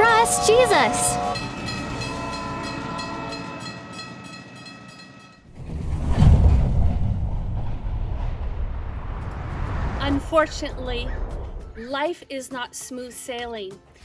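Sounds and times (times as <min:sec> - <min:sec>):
train horn chord: 0:00.0 - 0:04.0
train rumbling: 0:00.0 - 0:12.0.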